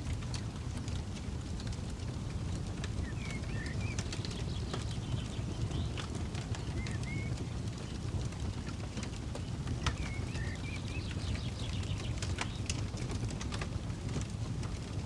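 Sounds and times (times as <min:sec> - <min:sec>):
campfire crackling and popping: 0:00.0 - 0:15.0
bird chirping: 0:03.0 - 0:08.0, 0:09.8 - 0:12.6.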